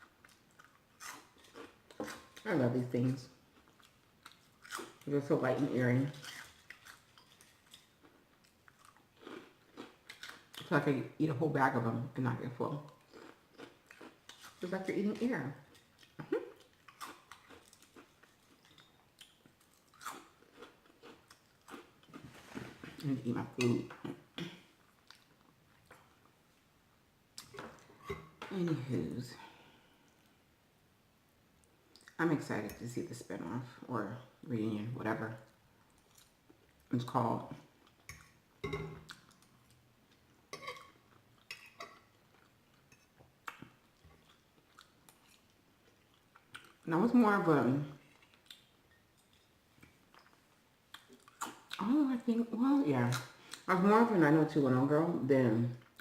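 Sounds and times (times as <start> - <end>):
chewing crunchy pork rinds: 0.2 - 2.5, 6.2 - 10.7, 12.8 - 14.7, 15.6 - 22.2, 41.1 - 46.9
mouth noises chewing food: 48.0 - 51.9.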